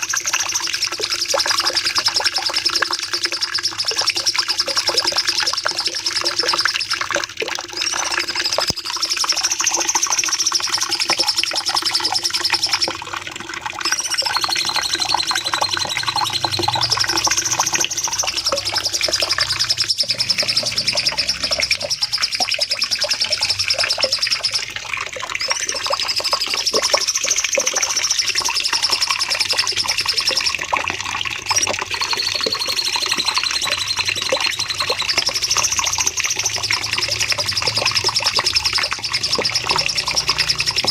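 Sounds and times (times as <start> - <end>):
bulbul singing: 13.8 - 24.8, 25.4 - 40.9.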